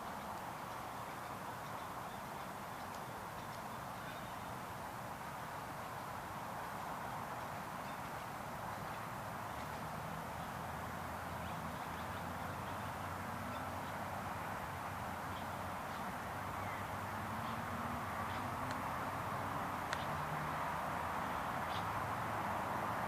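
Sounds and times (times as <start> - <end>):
outdoor background hiss: 0.0 - 23.0
faint ticks: 0.1 - 1.0, 2.4 - 3.8, 19.8 - 20.2.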